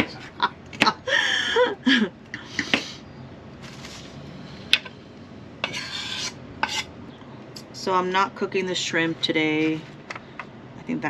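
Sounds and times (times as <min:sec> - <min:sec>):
short rustle: 0:03.6 - 0:04.2.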